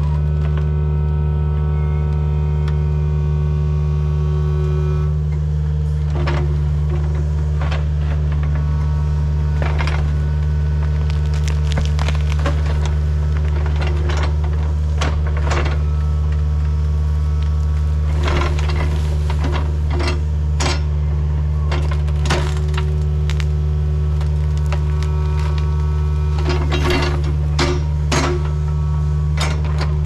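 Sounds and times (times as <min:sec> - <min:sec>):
machine engine humming: 0:00.0 - 0:30.0
wood cracking and snapping: 0:09.5 - 0:20.2, 0:21.7 - 0:28.6.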